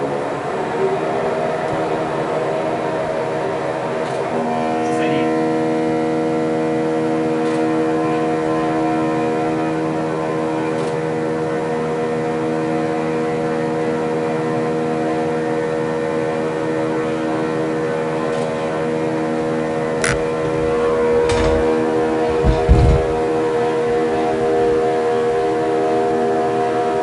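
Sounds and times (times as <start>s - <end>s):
steady machine hum: 0.0s - 27.0s.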